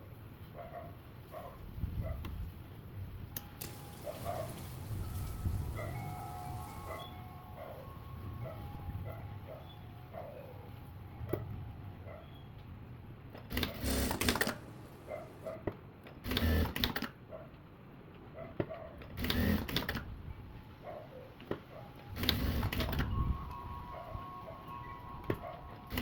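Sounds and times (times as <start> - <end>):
sewing machine stitching: 3.6 - 5.3, 13.4 - 15.5, 16.2 - 17.1, 19.2 - 20.0, 22.2 - 23.1.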